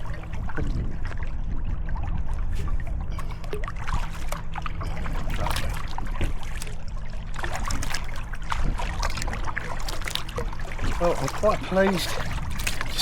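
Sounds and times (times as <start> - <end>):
low rumble: 0.0 - 13.0
paddle splashing in water: 0.0 - 13.0
water trickling: 0.0 - 13.0.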